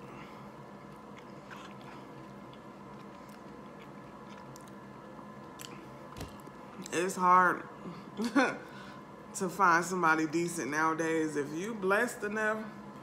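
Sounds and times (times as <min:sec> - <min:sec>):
faint chewing: 0:00.4 - 0:06.9.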